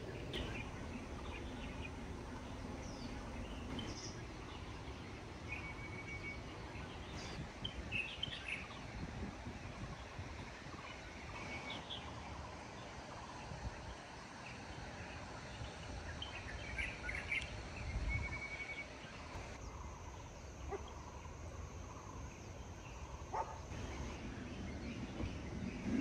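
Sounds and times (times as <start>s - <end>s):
bird chirps: 0.0s - 8.9s
low background rumble: 0.0s - 13.8s.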